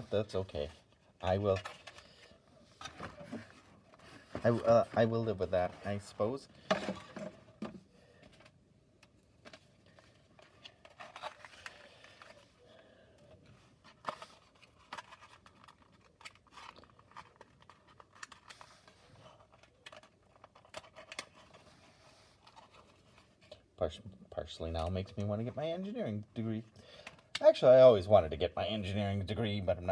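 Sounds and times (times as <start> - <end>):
plastic parts clicking and rustling: 0.8 - 12.6, 13.2 - 21.7.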